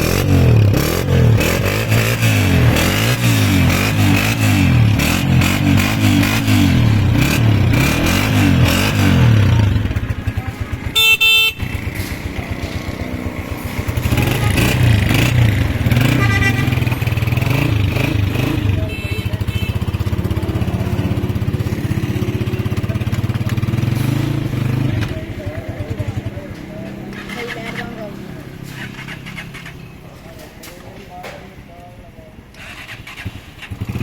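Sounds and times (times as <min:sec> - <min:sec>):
motorcycle engine revving and idling: 0:00.0 - 0:34.0
horn beep: 0:10.8 - 0:12.0, 0:14.0 - 0:20.4.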